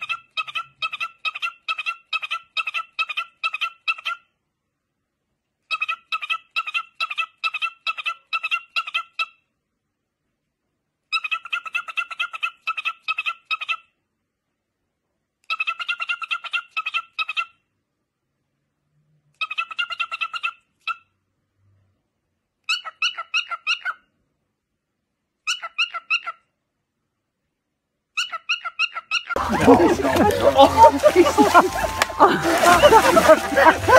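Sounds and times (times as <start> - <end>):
cockatiel chirping rapidly: 22.7 - 24.0, 25.5 - 26.4, 28.2 - 29.4.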